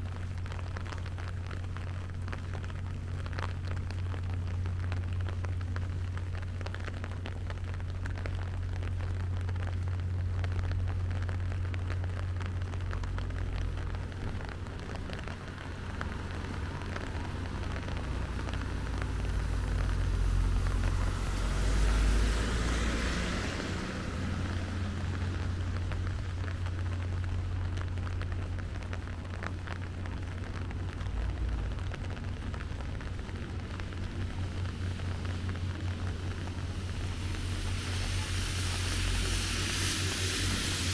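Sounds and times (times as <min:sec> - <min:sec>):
rain falling on street: 0:00.0 - 0:40.9
vehicle passing on wet road: 0:00.0 - 0:40.9.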